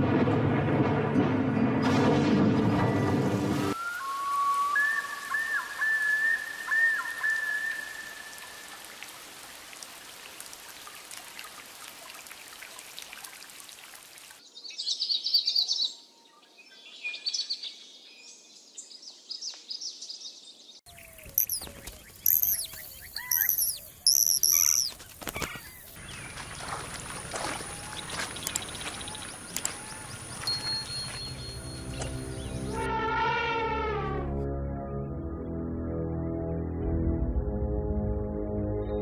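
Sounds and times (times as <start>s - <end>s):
heavy rain: 3.0s - 14.4s
whistling call: 3.7s - 8.6s, 21.3s - 24.9s
bird calls with falling notes: 3.7s - 8.9s, 19.9s - 34.2s
small birds chirping trills: 14.5s - 32.8s.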